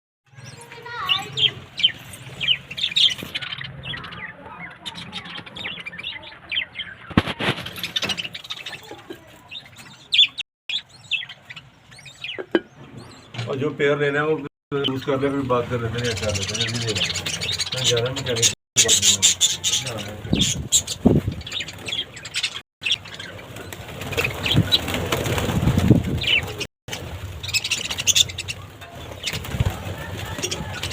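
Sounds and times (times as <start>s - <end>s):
budgerigars chirping: 0.4s - 8.9s, 9.5s - 13.4s, 14.8s - 25.3s, 26.2s - 29.6s
rustling flurry of wings: 7.0s - 10.0s, 15.9s - 30.9s.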